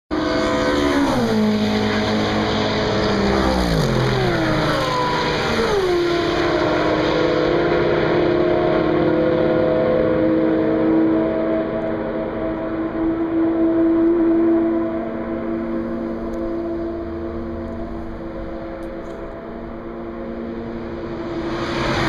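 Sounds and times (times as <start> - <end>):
race car passing at high speed: 0.1 - 22.0.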